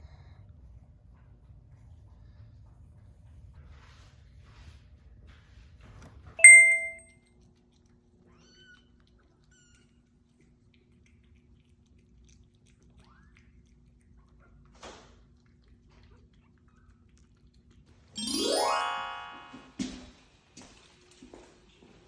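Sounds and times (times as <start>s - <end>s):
bright bell ding: 6.4s - 7.0s.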